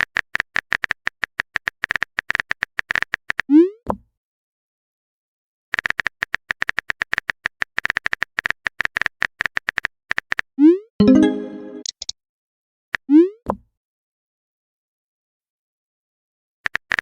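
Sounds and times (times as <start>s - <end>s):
chat chime: 11.0s - 11.9s.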